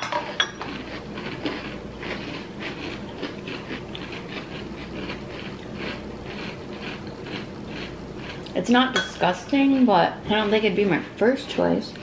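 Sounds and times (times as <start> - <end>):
crunchy chewing: 0.2 - 8.6
spoon clinking on glass bowl: 9.0 - 9.2.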